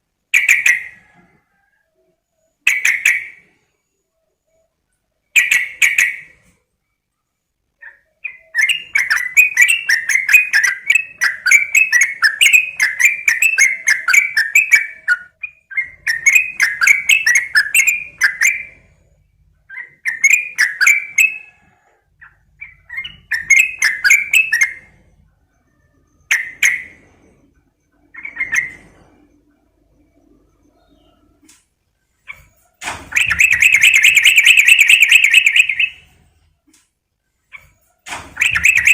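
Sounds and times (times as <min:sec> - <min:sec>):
bulbul bubbly chattering song: 0:33.1 - 0:36.0.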